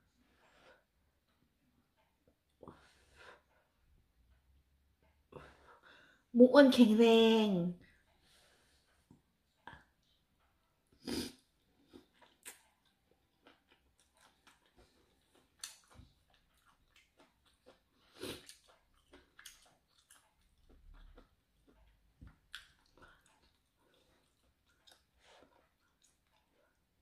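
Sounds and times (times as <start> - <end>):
person chewing: 9.5 - 27.0
small mouth clicks: 11.0 - 14.7.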